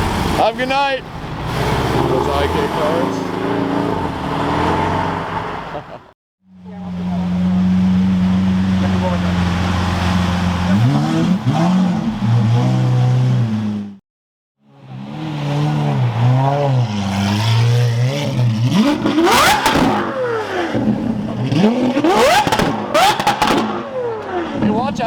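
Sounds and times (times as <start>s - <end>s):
exhaust cracks: 0.0s - 6.1s, 16.8s - 25.0s
engines accelerating hard: 0.0s - 14.0s, 14.7s - 25.0s
sports car engines revving: 0.0s - 14.0s, 14.7s - 25.0s.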